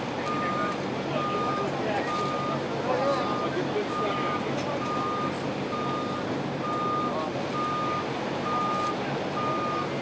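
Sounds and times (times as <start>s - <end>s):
backup alarm beeping: 3.3s - 9.9s.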